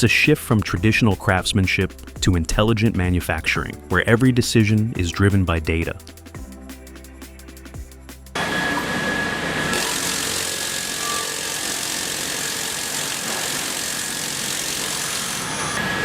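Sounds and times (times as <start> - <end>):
thin high whine: 8.4 - 10.0
sawmill machinery din: 8.4 - 16.0.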